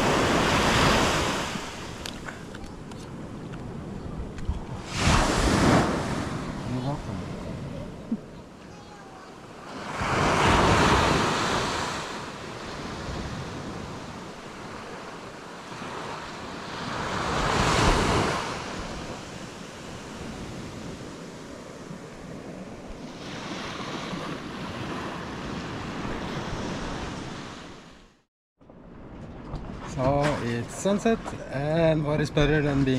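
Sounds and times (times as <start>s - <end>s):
surf washing onto beach: 0.0s - 2.3s, 4.8s - 7.7s, 8.7s - 27.8s.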